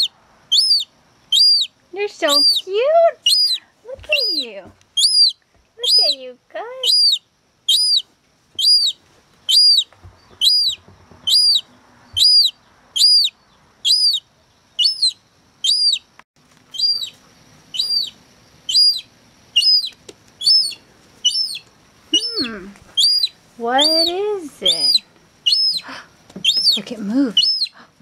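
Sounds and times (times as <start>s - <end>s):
seagull chick peeping: 0.0s - 6.2s, 6.8s - 16.1s, 16.7s - 27.8s.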